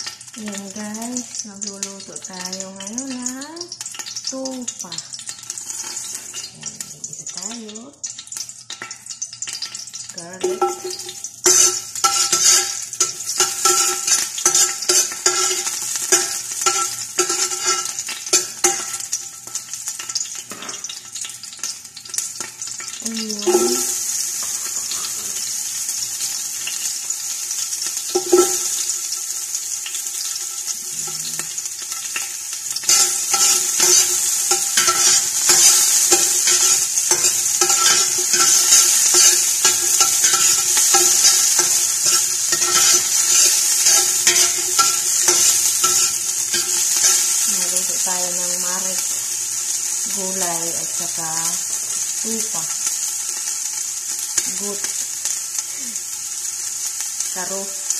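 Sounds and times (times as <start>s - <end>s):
garlic sizzling in oil: 0.0s - 57.9s
metal spoon knocking on pot: 10.4s - 19.0s, 23.4s - 23.9s, 28.2s - 28.7s, 32.9s - 47.2s.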